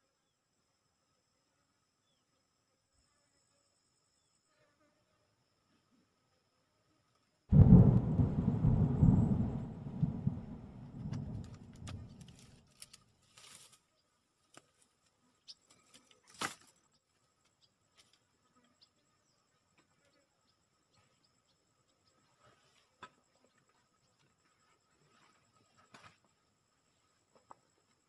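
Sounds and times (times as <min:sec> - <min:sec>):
loud low rumble: 0:07.5 - 0:12.4.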